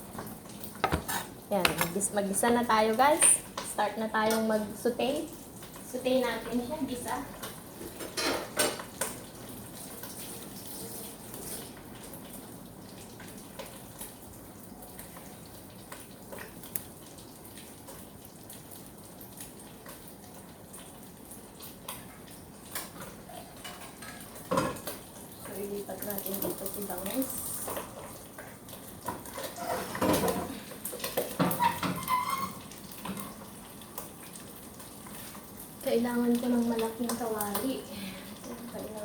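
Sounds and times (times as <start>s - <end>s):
metal utensils clinking on pots: 0.8s - 4.5s.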